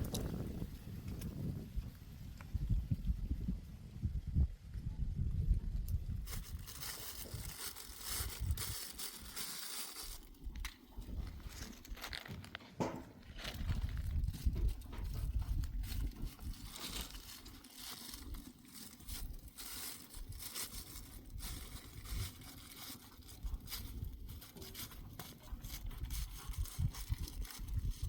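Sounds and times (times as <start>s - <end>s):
crackling and rustling: 5.9s - 28.0s.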